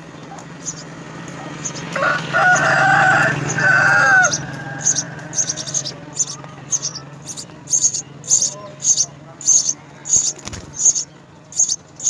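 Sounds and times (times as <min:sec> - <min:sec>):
sparrows chirping: 0:00.0 - 0:12.0
rooster crowing: 0:01.9 - 0:07.0.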